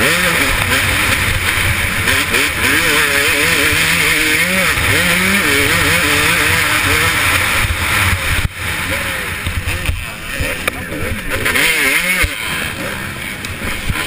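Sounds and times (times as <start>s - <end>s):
motocross engine revving: 0.0s - 14.0s
wind rushing over microphone: 4.5s - 12.2s.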